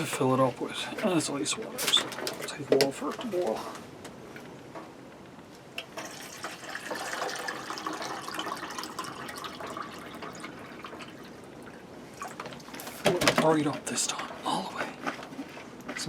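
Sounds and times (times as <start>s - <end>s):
water pouring into a kettle: 5.9s - 12.7s.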